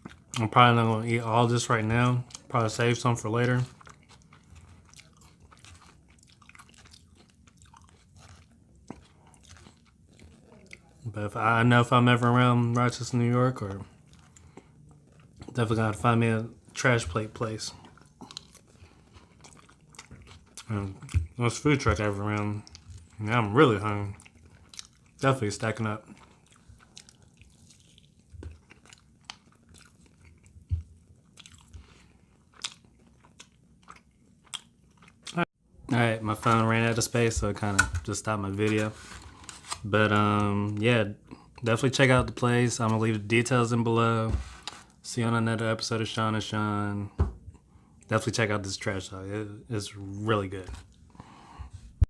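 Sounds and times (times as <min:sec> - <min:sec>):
person chewing food: 0:00.0 - 0:00.4, 0:02.2 - 0:02.5, 0:03.3 - 0:11.1, 0:13.5 - 0:35.5.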